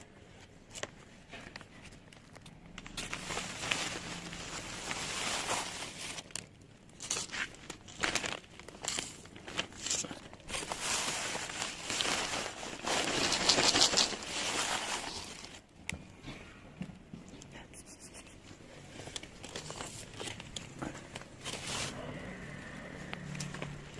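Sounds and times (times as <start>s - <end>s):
plastic packaging crinkling: 0.6s - 15.7s, 18.9s - 22.0s.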